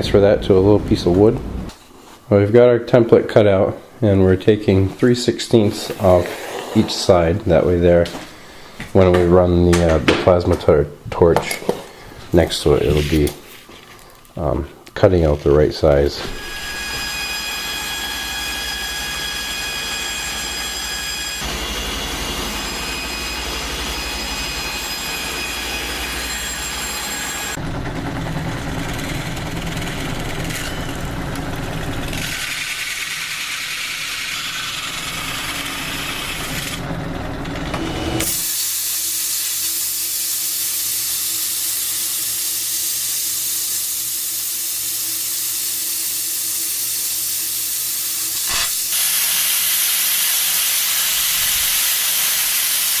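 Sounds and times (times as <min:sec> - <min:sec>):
plasma cutter hissing: 0:38.2 - 0:53.0.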